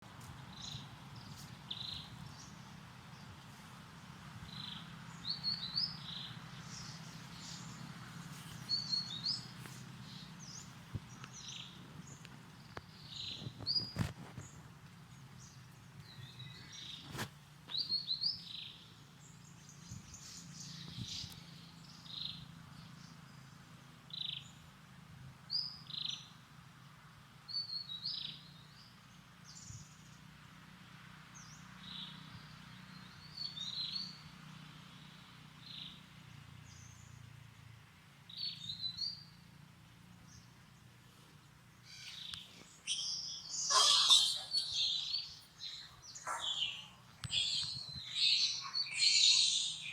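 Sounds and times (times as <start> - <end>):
short high-pitched chirping calls: 41.9 - 49.9
harsher calls: 42.9 - 49.9.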